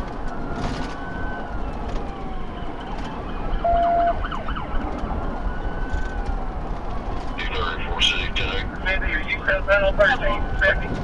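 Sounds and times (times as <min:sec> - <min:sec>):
police siren wailing: 0:00.0 - 0:11.0
road and engine rumble: 0:00.0 - 0:11.0.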